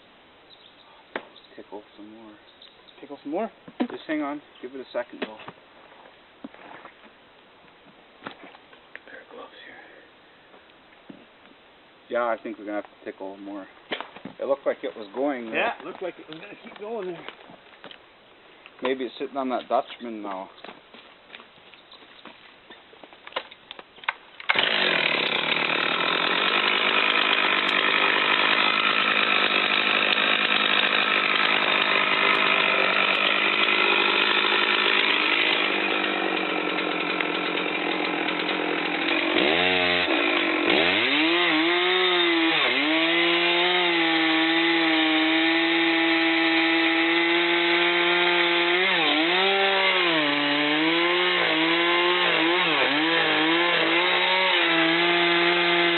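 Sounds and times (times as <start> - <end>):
chainsaw cutting: 24.4 - 55.9.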